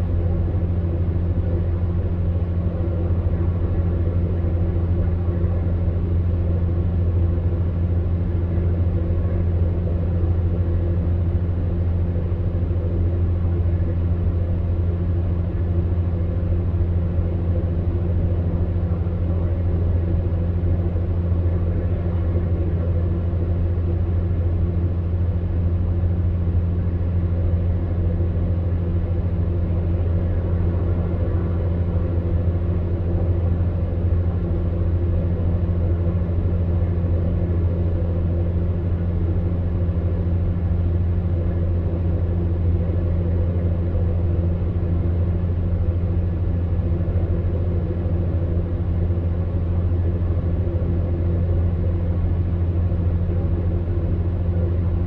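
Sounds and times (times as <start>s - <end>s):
fan airflow rushing: 0.0s - 3.9s
fan heater motor hum: 0.0s - 55.0s.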